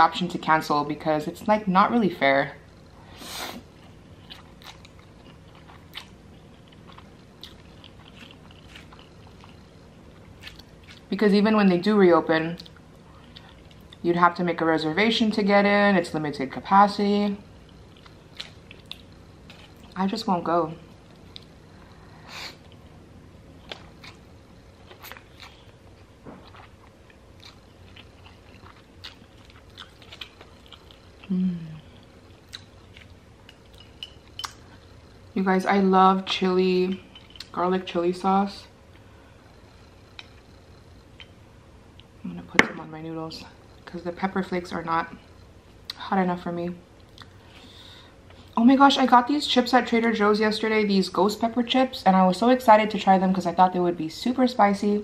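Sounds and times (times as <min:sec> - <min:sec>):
person chewing food: 0:03.8 - 0:11.1, 0:17.6 - 0:20.0, 0:23.6 - 0:34.9.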